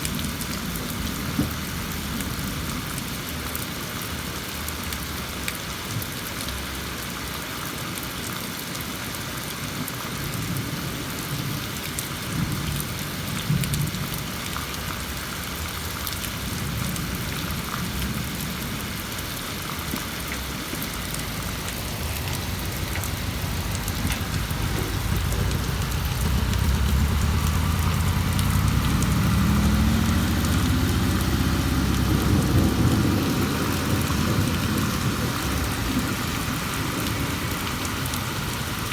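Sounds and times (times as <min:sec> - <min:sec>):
heavy rain: 0:00.0 - 0:38.9
low rumble of thunder: 0:21.2 - 0:38.6.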